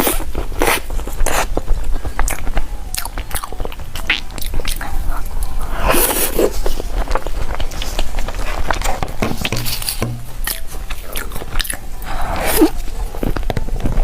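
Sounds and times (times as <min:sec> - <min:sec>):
wet eating clicks and scrapes: 0:00.0 - 0:14.0.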